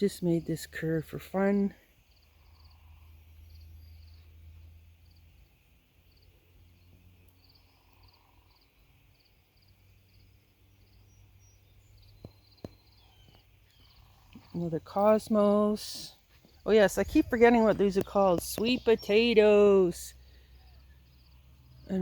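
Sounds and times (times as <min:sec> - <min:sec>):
cricket chirping: 0:01.9 - 0:14.6, 0:20.1 - 0:22.0.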